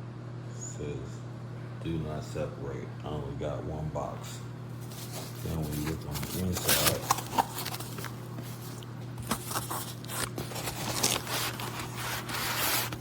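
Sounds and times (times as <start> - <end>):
steady low hum: 0.0 - 13.0
mat sheets rustling and scraping: 4.8 - 13.0.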